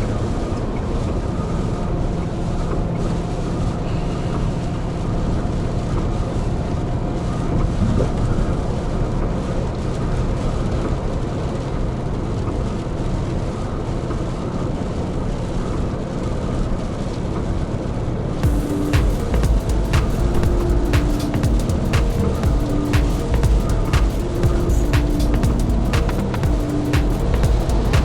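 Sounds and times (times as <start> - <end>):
low drone: 18.4 - 28.0.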